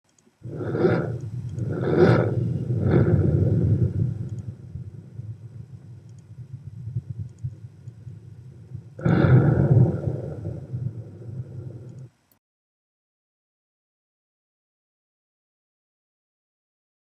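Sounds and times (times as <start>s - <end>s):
loud booming swells: 0.4s - 12.0s
low rumble: 0.4s - 12.2s.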